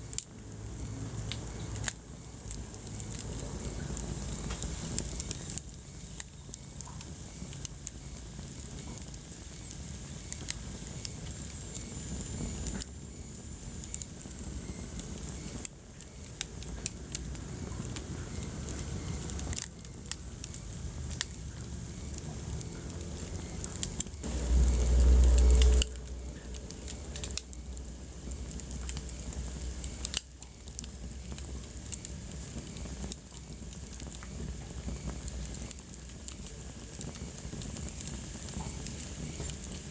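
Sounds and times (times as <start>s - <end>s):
wood fire crackling: 0.0s - 39.9s
low rumble: 20.7s - 31.5s.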